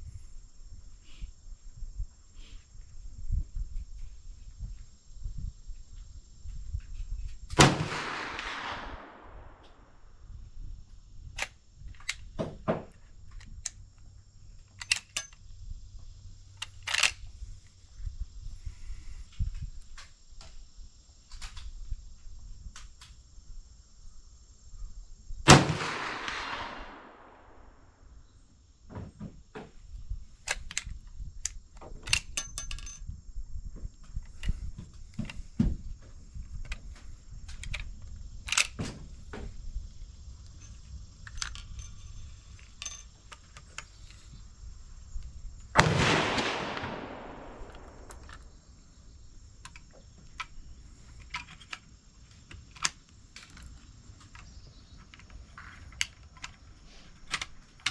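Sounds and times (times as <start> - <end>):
gun handling clicks and knocks: 5.9 - 10.2, 10.9 - 17.8, 18.9 - 20.6, 21.2 - 21.9, 25.5 - 28.0, 28.9 - 33.2, 33.8 - 57.9
gunshots with rolling echo: 7.6 - 10.0, 25.5 - 28.0, 45.8 - 48.5.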